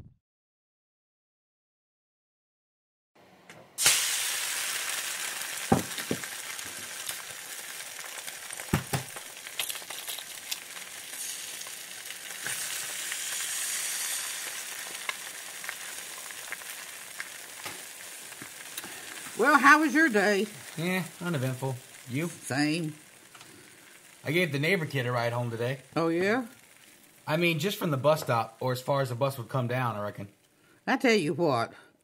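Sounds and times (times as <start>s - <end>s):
food sizzling in a frying pan: 3.8s - 30.8s
knocks against a pan: 8.7s - 9.1s.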